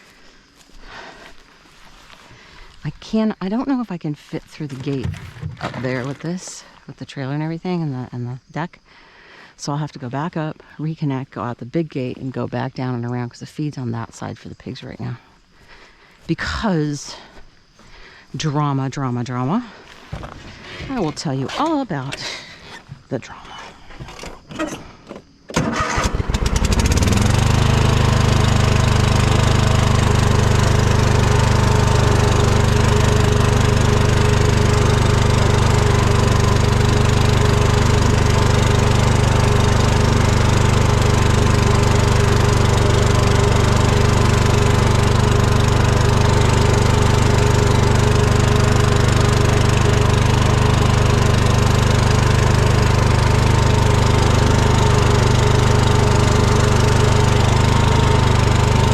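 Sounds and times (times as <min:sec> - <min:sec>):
lawn mower engine running: 0:00.1 - 0:06.8, 0:25.5 - 0:58.9.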